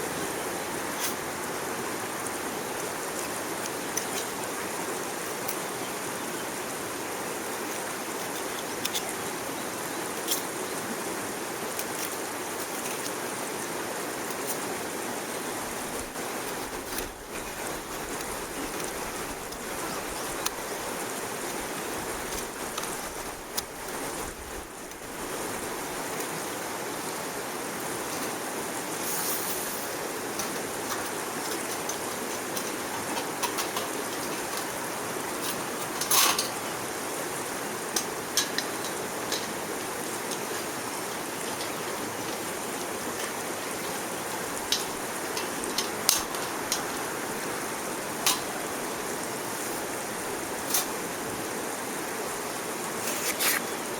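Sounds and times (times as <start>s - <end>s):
wood stove fire rushing: 11.4s - 26.3s.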